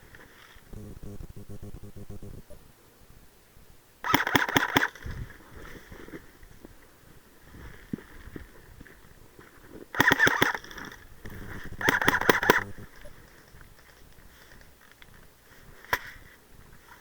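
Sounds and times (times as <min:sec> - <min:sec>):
airsoft gun firing: 0:04.0 - 0:05.2, 0:09.9 - 0:10.8, 0:11.8 - 0:12.7.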